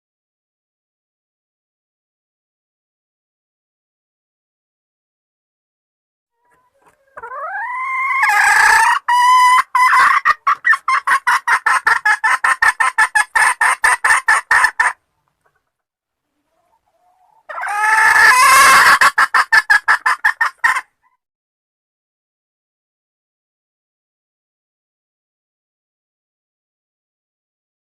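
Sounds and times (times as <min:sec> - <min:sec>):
hen calling and clucking: 0:06.4 - 0:21.2.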